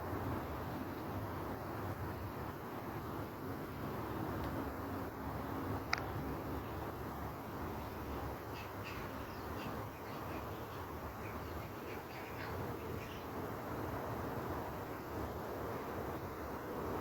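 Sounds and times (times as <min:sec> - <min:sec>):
outdoor ambience hiss: 0:00.0 - 0:17.0
bird calling: 0:08.4 - 0:13.4.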